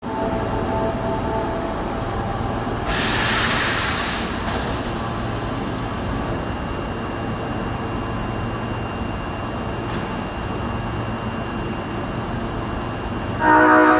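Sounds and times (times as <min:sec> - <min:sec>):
train rumble: 0:00.0 - 0:13.9
compressed air hiss: 0:02.9 - 0:06.3.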